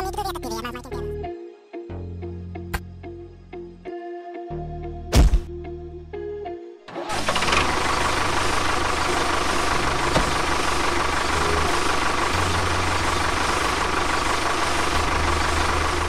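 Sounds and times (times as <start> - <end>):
motor running with low rumble: 7.1 - 16.0.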